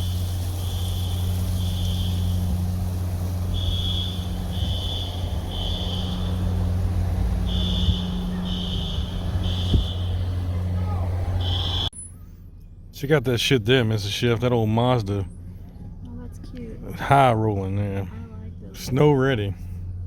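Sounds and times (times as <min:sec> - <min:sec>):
low engine hum: 0:00.0 - 0:20.0
fire alarm beeping: 0:03.5 - 0:10.4, 0:11.4 - 0:12.0.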